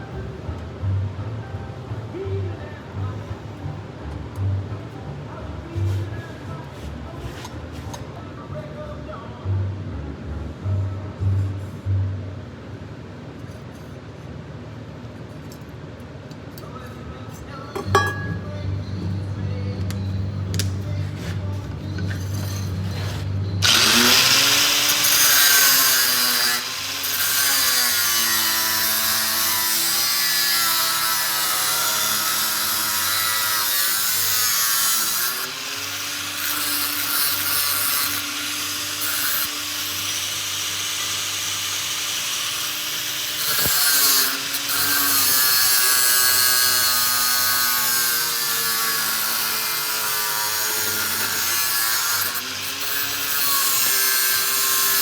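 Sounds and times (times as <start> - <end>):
power tool motor whining: 22.1 - 55.0.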